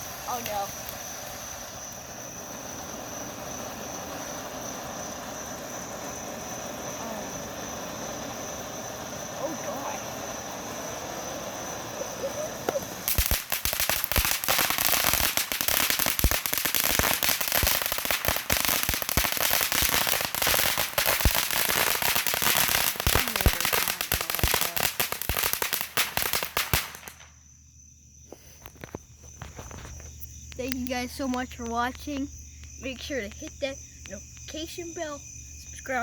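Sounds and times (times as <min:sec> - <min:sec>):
fireworks bangs: 0:00.0 - 0:27.4
fireworks crackling pops: 0:00.0 - 0:27.6, 0:28.2 - 0:35.8.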